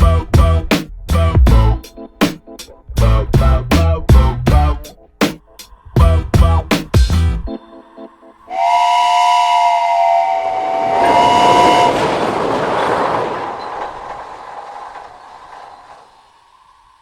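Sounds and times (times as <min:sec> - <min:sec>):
train two-tone horn: 0:08.5 - 0:12.3
train running noise: 0:08.5 - 0:17.0.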